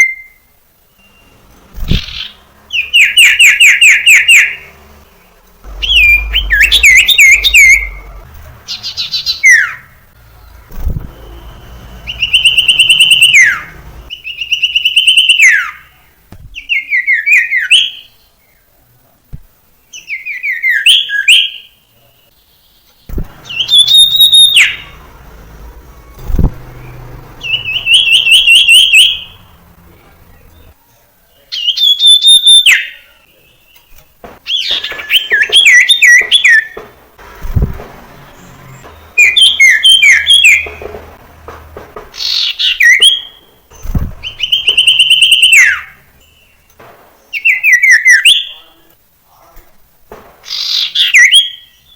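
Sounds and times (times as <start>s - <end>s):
bird singing whistled notes: 0.0s - 4.7s, 5.7s - 18.6s, 19.8s - 25.1s, 25.8s - 29.4s, 31.4s - 36.8s, 38.4s - 40.8s, 42.2s - 48.7s, 50.5s - 51.9s.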